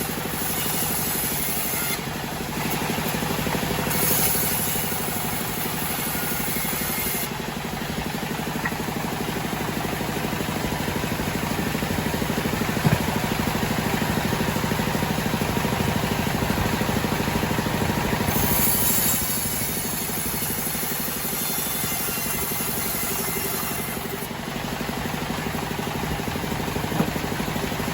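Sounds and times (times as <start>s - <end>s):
sawmill engine drumming: 0.0s - 27.9s
short knock: 12.8s - 13.2s.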